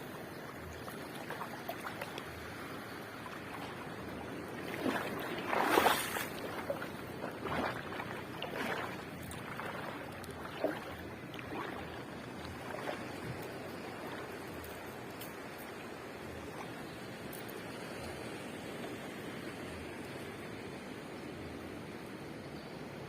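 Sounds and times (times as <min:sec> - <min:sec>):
sea surf breaking on shore: 0:00.0 - 0:15.1.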